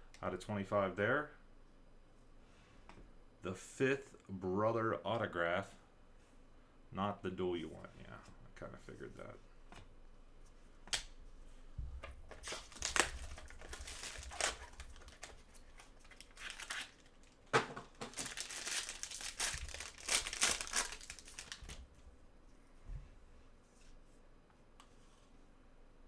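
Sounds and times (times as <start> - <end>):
wrapper tearing and crinkling: 12.4 - 21.9.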